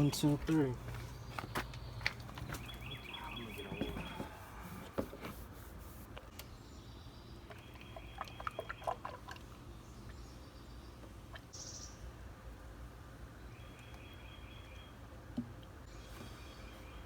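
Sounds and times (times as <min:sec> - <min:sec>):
oil glugging from a bottle: 0:07.4 - 0:10.2.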